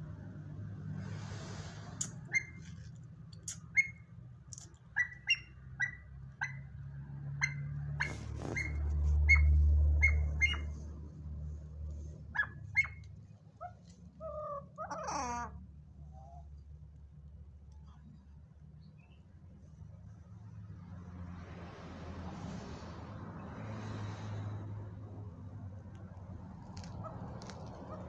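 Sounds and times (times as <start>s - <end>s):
bird chirping: 2.0s - 2.8s, 3.4s - 4.0s, 4.6s - 6.7s, 7.4s - 10.8s, 12.4s - 15.4s.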